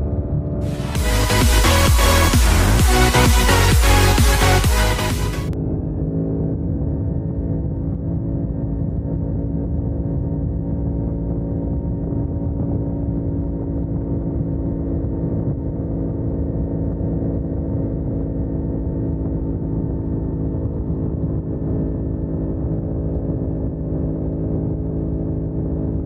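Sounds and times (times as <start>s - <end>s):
wind rush on microphone: 6.6s - 26.0s.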